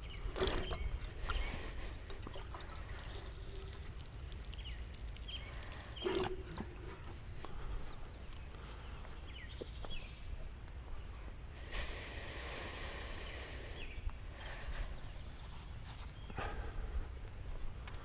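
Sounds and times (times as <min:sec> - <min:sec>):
bird-like chirps: 0:02.8 - 0:10.4.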